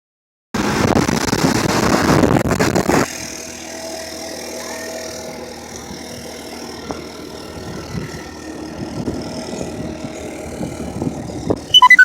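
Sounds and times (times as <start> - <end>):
moving vehicle hum: 0.6 - 11.8
wind buffeting microphone: 7.5 - 11.7.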